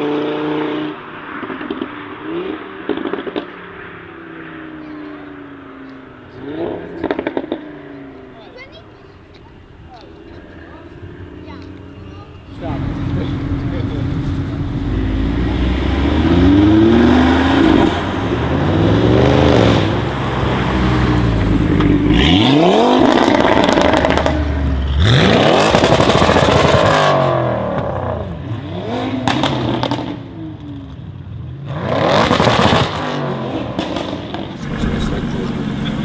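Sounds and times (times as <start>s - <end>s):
exhaust crackles: 1.4s - 27.6s, 31.8s - 36.0s
car engine revving hard: 12.3s - 30.6s, 31.6s - 36.0s.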